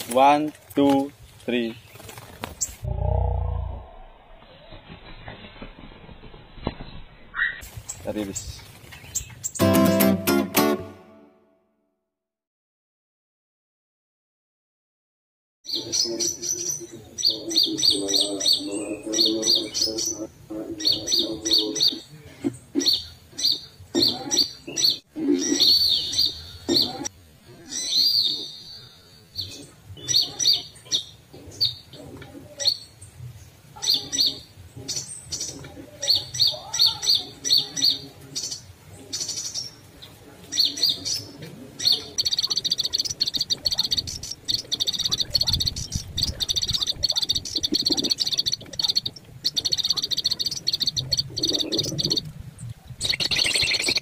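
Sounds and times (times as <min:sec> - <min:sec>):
small birds chirping: 0:06.9 - 0:09.6, 0:15.7 - 0:54.0.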